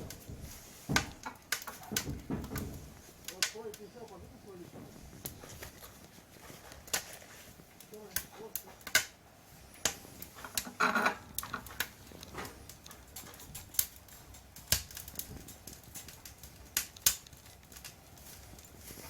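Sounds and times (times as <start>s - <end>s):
sharp clicks and knocks: 0.0s - 3.8s.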